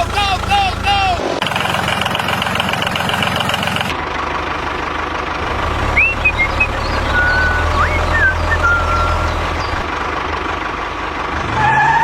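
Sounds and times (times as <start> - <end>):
low engine-like drone: 0.0 - 11.5
high whistling chirps: 6.0 - 9.8.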